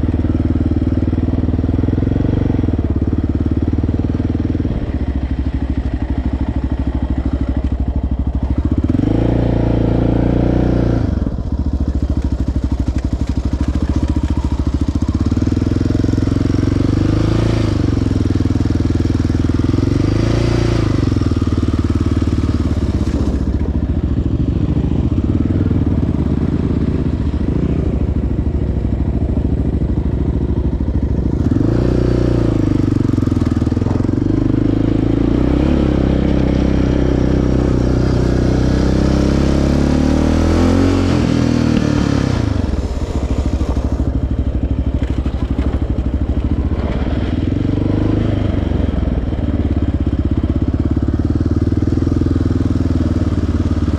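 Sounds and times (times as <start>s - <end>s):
atv engine revving: 0.0s - 53.9s.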